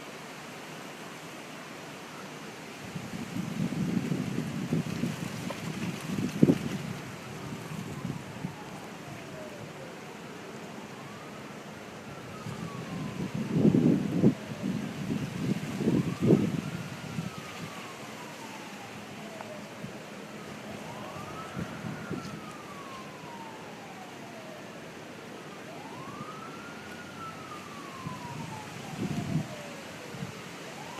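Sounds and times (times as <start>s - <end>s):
emergency siren wailing: 1.9s - 30.9s
wind buffeting microphone: 2.8s - 9.6s, 12.0s - 24.6s, 25.7s - 30.9s.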